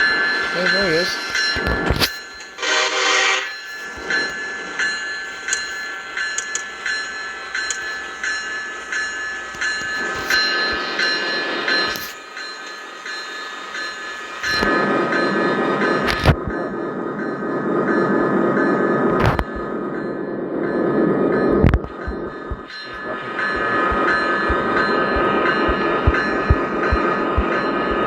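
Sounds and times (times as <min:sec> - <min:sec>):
train horn note: 0:02.6 - 0:03.5
train wheels clicking over rail joints: 0:03.6 - 0:28.0
high ringing tone: 0:17.3 - 0:28.0.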